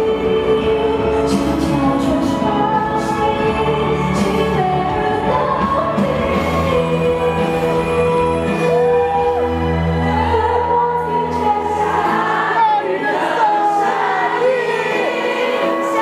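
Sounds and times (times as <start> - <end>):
band accompaniment: 0.0 - 10.5
woman singing pop ballad: 0.0 - 16.0.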